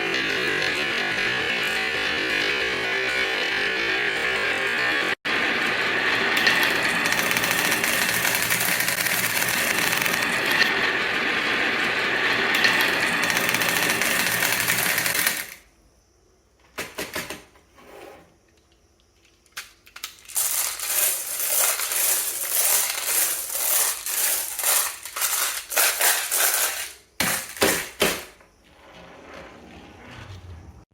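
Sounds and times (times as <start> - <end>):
marbles rolling and clattering: 5.3 - 15.6, 19.3 - 28.2.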